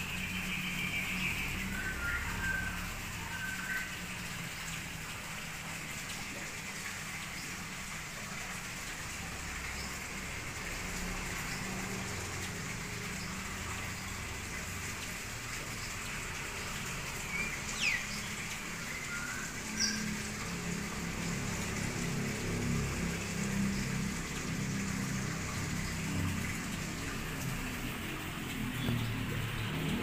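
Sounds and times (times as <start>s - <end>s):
steady rain-like hiss: 0.0s - 30.0s
whistled bird notes: 0.2s - 3.9s.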